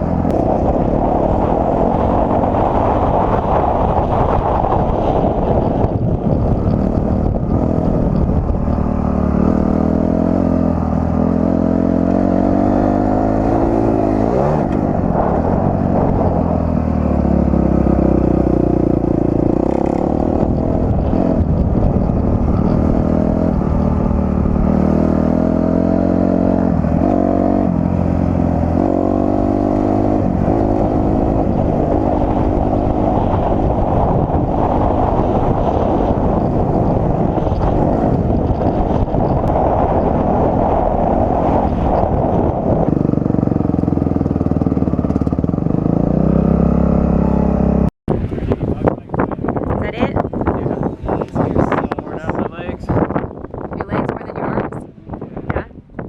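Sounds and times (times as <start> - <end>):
wind rumble on microphone: 0.0 - 56.0
dirt bike engine revving: 8.7 - 47.9.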